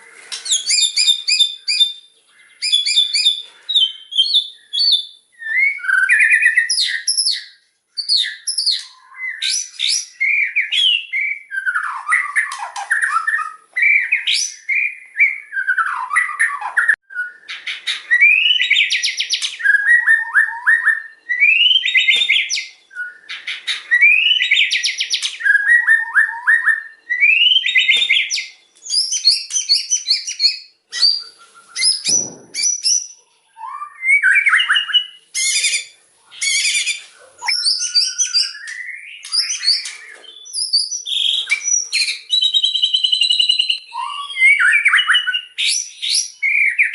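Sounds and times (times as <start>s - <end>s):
songbird singing whistles and trills: 0.0s - 46.9s.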